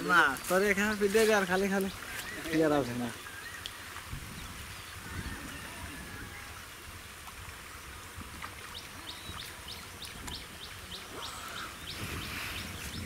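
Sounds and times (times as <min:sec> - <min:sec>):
bird chirping: 0:08.7 - 0:13.0.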